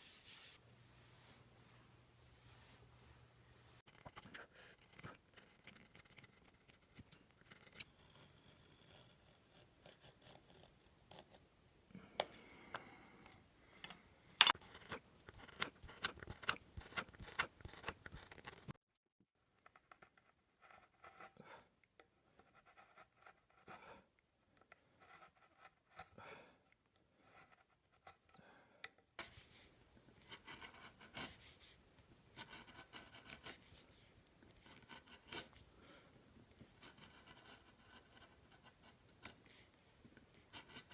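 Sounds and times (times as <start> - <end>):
carving tool scraping wood: 3.9 - 11.4, 14.5 - 18.7, 19.8 - 21.6, 24.6 - 26.2, 27.1 - 28.4, 30.2 - 33.8, 34.6 - 35.6, 36.6 - 39.6, 40.4 - 40.9.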